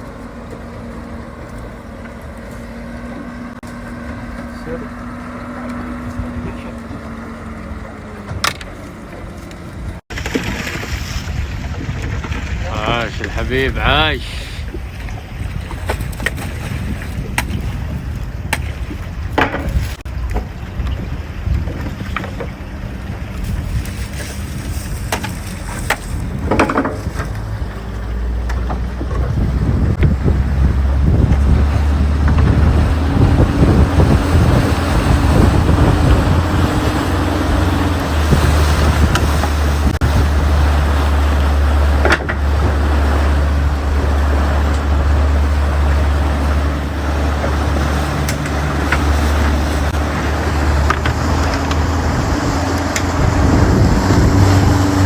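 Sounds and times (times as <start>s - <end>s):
boat engine running: 0.0s - 55.0s
wind and water noise: 0.0s - 55.0s.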